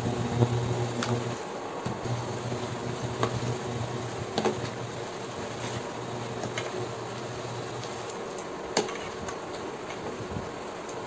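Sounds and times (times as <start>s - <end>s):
cooktop humming: 0.0s - 11.0s
wooden spatula stirring in pot: 2.5s - 8.2s.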